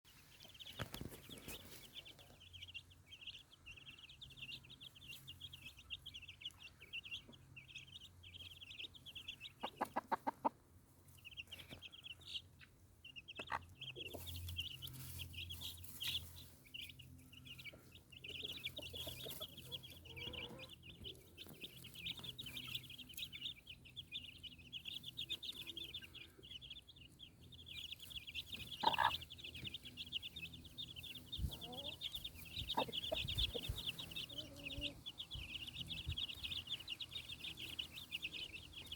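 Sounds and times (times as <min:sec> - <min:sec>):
chicks peeping: 0:00.1 - 0:38.9.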